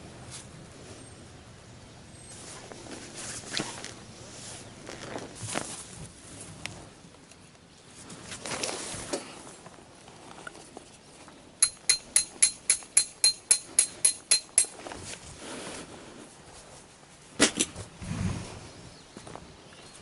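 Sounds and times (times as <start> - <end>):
sharp metallic taps: 11.6 - 14.8.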